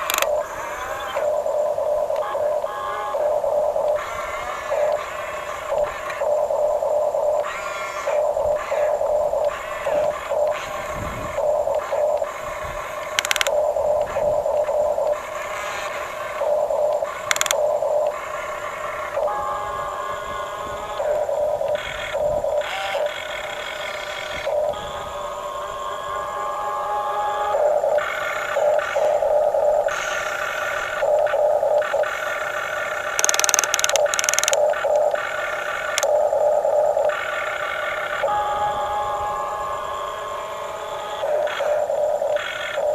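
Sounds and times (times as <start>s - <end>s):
rattling crackle: 13.2s - 13.5s, 17.3s - 17.5s, 33.2s - 34.6s
electric gear motors whining: 32.9s - 36.1s
small electric motors whining: 33.2s - 34.6s.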